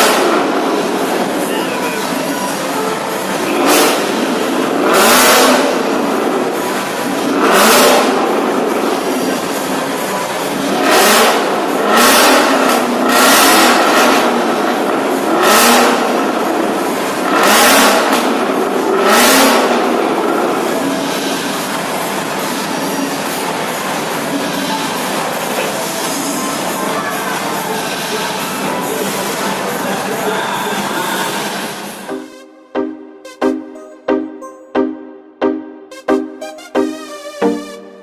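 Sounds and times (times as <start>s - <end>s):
car engine revving in blips: 0.0s - 26.7s.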